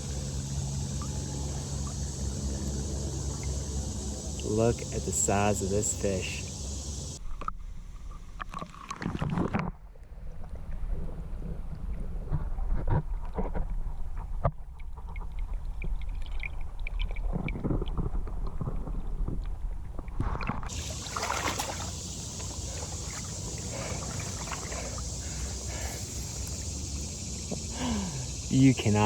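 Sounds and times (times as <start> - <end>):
steady high hiss: 0.0 - 7.2, 20.7 - 29.0
water splashing and sloshing: 0.0 - 7.4, 12.4 - 29.0.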